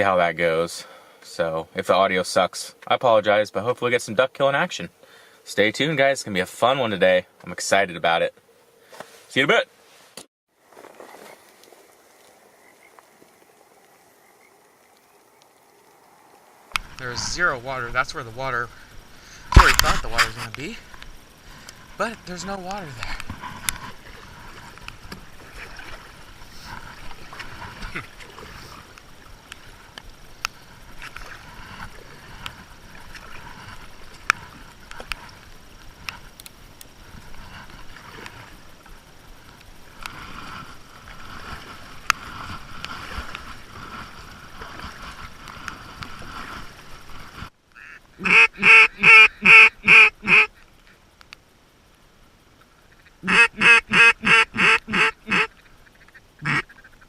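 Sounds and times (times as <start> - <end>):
rain hiss: 0.0 - 57.0
sharp ticks: 34.2 - 37.0
duck call quacks: 47.8 - 50.6, 52.9 - 57.0.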